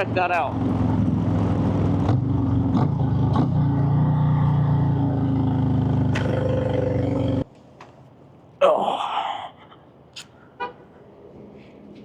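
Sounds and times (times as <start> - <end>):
motorcycle engine cruising: 0.4 - 7.4.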